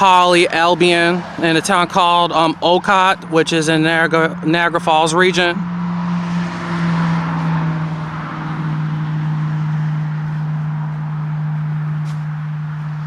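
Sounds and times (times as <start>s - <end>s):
highway traffic drone: 0.0s - 13.0s.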